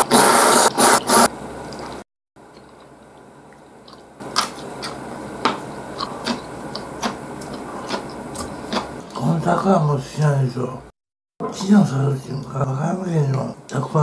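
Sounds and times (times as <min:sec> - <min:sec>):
chewing noodles: 0:01.7 - 0:09.3.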